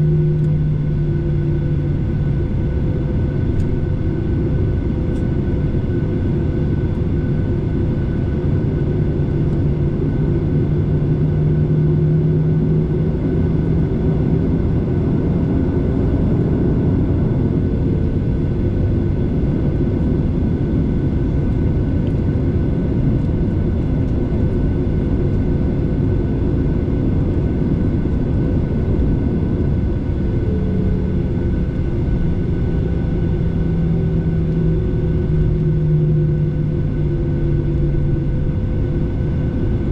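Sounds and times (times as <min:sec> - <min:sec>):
faint shifting hum: 0:00.0 - 0:05.5
airliner engine drone: 0:00.0 - 0:39.9.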